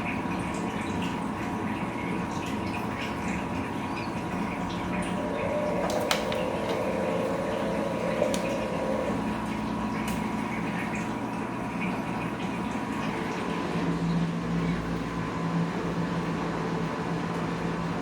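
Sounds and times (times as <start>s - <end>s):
washing machine running: 0.0s - 18.0s
water flowing: 0.2s - 16.0s
steady hum: 4.2s - 18.0s
pump-like whine: 4.6s - 10.1s.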